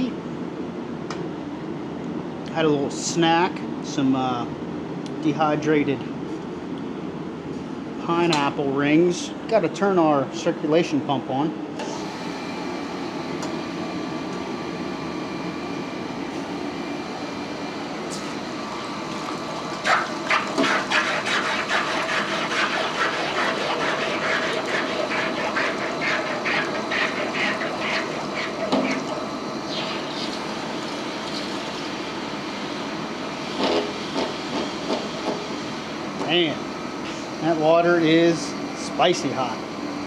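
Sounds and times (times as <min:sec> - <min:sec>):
gas forge rushing: 0:11.8 - 0:35.6
circulation pump: 0:11.8 - 0:40.0.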